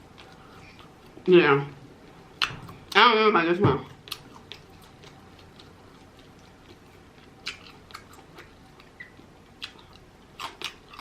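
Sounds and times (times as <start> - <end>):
chewing chicken: 3.8 - 11.0.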